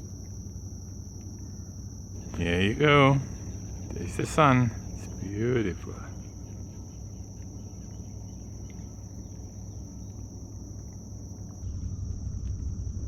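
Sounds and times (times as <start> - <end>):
insects trilling: 0.0 - 13.0
faint bird chirps: 2.2 - 10.9.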